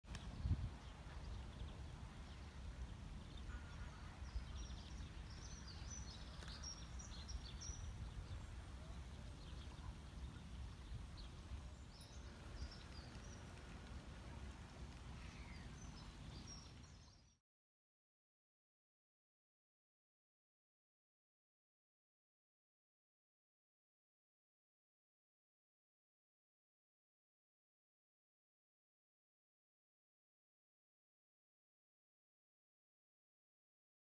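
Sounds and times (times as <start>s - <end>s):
low outdoor rumble: 0.1s - 17.2s
birds chirping: 0.1s - 17.4s.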